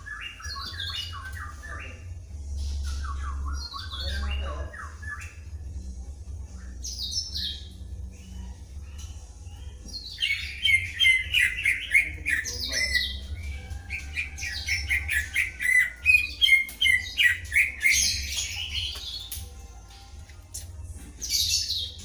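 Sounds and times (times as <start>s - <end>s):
birds singing whistles and chirps: 0.0s - 19.6s, 20.5s - 22.0s
steady low hum: 1.1s - 16.0s.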